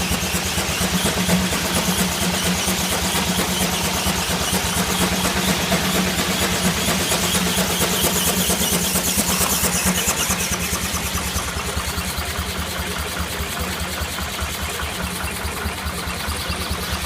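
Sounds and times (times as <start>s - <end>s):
steam engine running: 0.0s - 17.0s.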